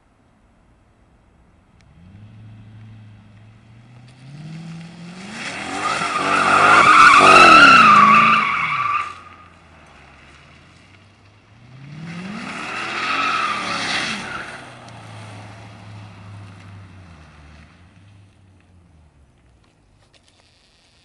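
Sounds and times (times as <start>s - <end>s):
car engine revving: 1.8s - 19.2s
tires squealing: 3.7s - 18.5s.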